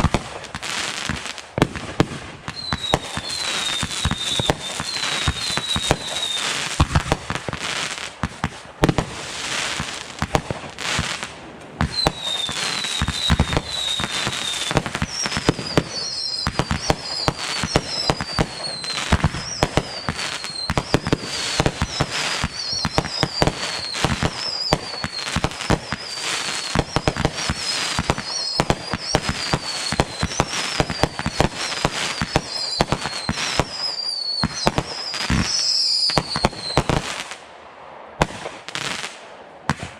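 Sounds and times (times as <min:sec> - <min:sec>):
fireworks bangs and crackling: 0:00.0 - 0:39.9
high falling whistles: 0:02.6 - 0:06.6, 0:11.9 - 0:36.9.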